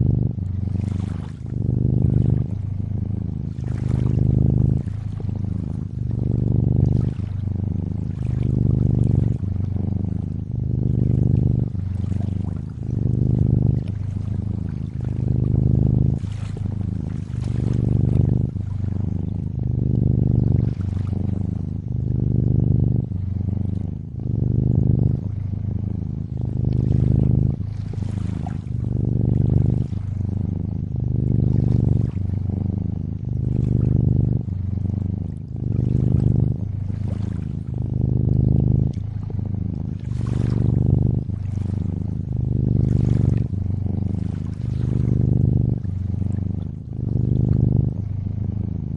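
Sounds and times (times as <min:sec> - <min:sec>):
cat purring: 0:00.0 - 0:48.9
gentle water sounds: 0:00.4 - 0:02.8, 0:03.4 - 0:20.0, 0:20.6 - 0:24.1, 0:26.3 - 0:30.2, 0:35.3 - 0:43.5, 0:44.1 - 0:47.5.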